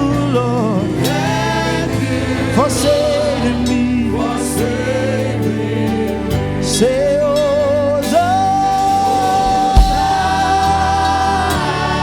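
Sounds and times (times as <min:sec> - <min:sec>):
keyboard and bass accompaniment: 0:00.0 - 0:12.0
deep bass hit: 0:09.5 - 0:10.6.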